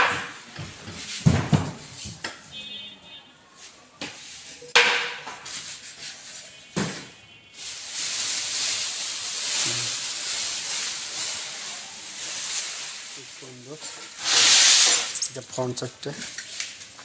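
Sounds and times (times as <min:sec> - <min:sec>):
steady hiss: 0:07.8 - 0:15.9.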